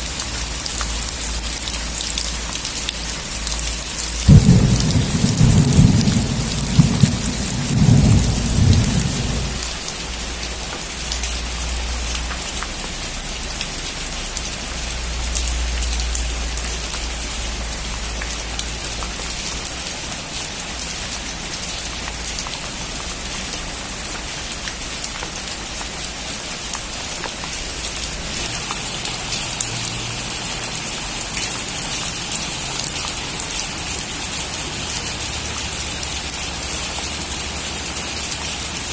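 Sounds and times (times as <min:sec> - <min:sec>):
heavy rain on a metal roof: 0:00.0 - 0:38.9
thunder rumble: 0:04.2 - 0:09.8.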